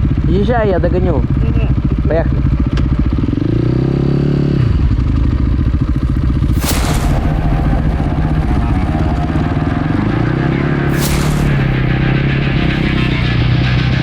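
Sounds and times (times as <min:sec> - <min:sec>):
motorcycle engine revving: 0:01.0 - 0:14.0
brief rush of noise: 0:06.6 - 0:09.1, 0:10.9 - 0:13.6.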